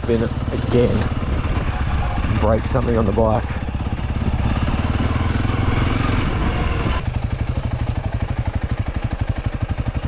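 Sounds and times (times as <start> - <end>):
dirt bike engine revving: 0.0 - 8.1.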